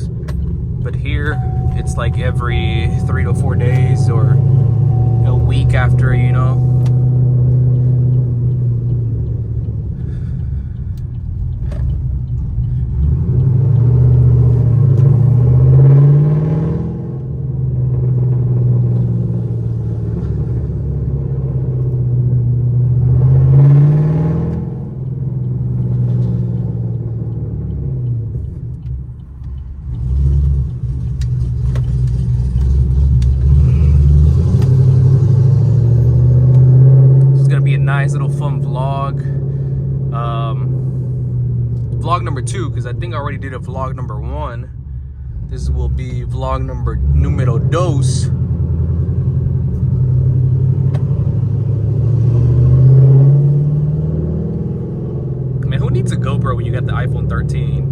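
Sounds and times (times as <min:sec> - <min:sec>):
car engine rumbling and revving: 0:00.0 - 0:57.9.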